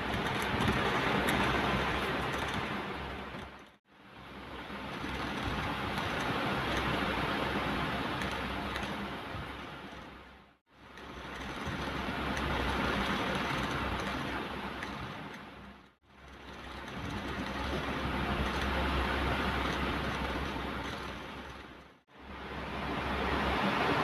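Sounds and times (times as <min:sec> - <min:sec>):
ocean surf: 0:22.3 - 0:24.0.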